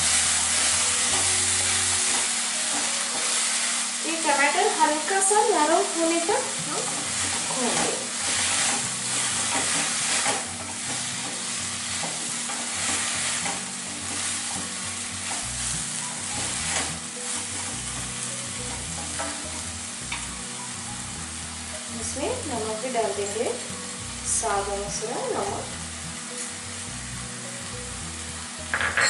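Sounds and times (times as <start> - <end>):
vegetables sizzling in oil: 0.0 - 29.0
spatula scraping pan: 6.4 - 20.2.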